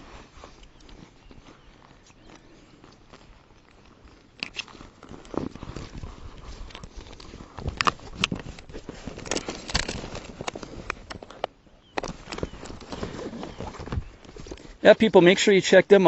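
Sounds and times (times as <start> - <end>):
rustling of gear: 0.0 - 14.9
knocks and clicks of gear: 6.6 - 14.6.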